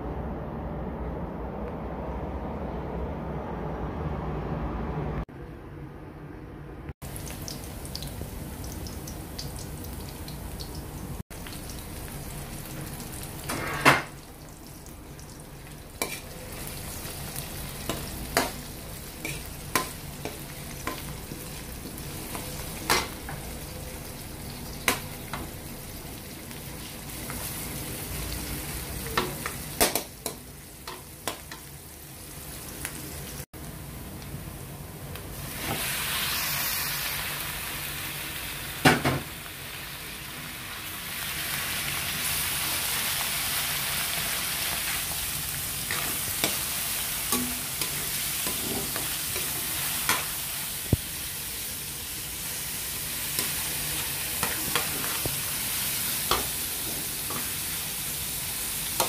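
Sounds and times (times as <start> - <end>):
garlic and onion sizzling: 7.0 - 59.0
metal spatula scraping wok: 16.0 - 16.4, 45.9 - 50.3.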